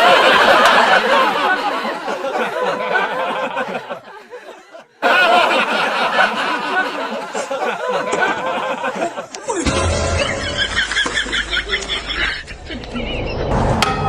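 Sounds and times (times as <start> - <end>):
people chattering: 0.0 - 9.9
group of people laughing: 0.0 - 13.6.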